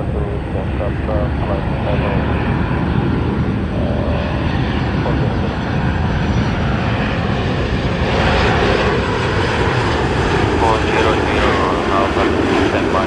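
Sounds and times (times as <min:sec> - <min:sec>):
airliner engines rumbling: 0:00.0 - 0:13.0.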